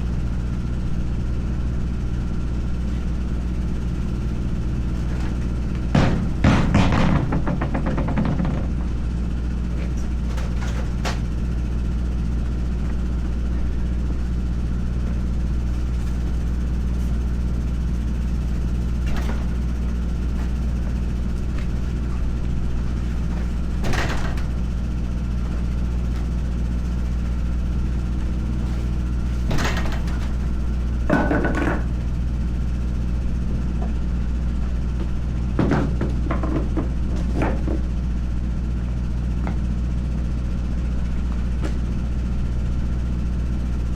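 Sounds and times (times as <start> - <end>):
engine idling: 0.0 - 43.9
metal knocks and clanks: 3.7 - 11.4, 18.4 - 26.4, 27.8 - 32.2, 34.7 - 38.0.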